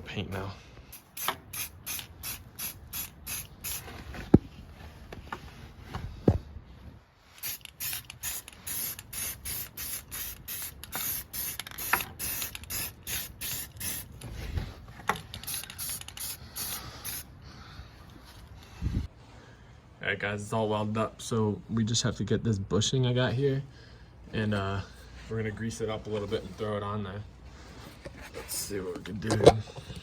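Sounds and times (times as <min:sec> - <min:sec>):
spray paint can bursts: 0:00.9 - 0:03.9, 0:07.4 - 0:14.2, 0:15.2 - 0:17.3.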